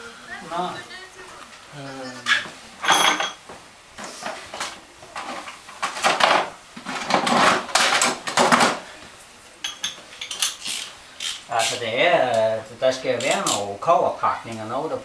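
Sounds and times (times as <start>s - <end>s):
metal tools clattering: 2.3s - 3.4s, 9.6s - 13.7s.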